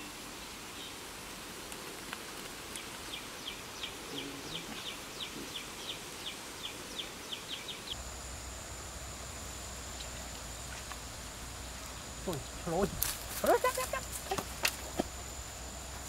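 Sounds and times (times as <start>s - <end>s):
outdoor ambience: 0.0s - 16.0s
steady high whine: 3.0s - 16.0s
low hum: 7.8s - 16.0s.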